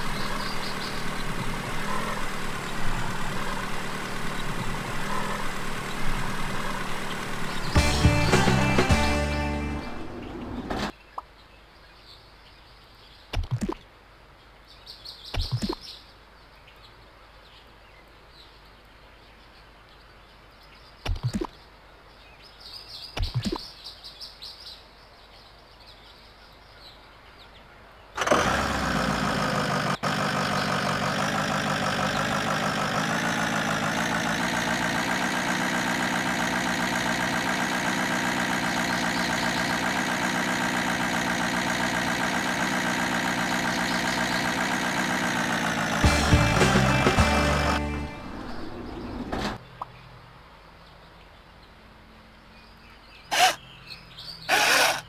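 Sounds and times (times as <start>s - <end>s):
toy engine sound effect: 53.3s - 53.6s, 54.5s - 55.0s.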